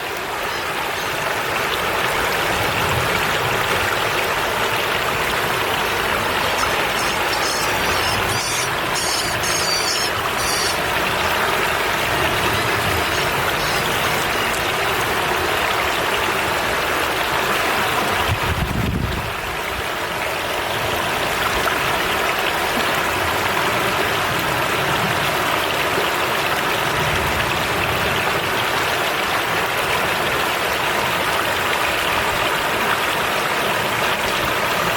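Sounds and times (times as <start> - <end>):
river water rushing: 0.0 - 34.9
high-pitched chirping: 6.5 - 10.8, 13.1 - 14.1.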